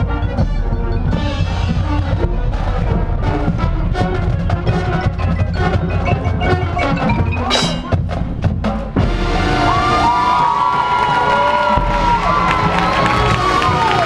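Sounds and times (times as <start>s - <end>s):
mallet keyboards: 0.0s - 9.6s
drums: 0.0s - 14.0s
marching band playing: 0.0s - 14.0s.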